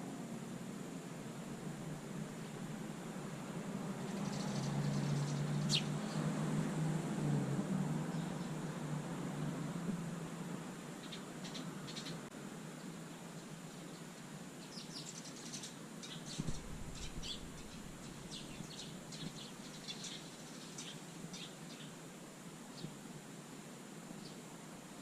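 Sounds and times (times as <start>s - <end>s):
sparrows chirping: 4.0s - 6.4s, 8.1s - 8.8s, 11.0s - 12.3s, 13.3s - 22.0s, 22.7s - 23.0s, 24.2s - 24.5s.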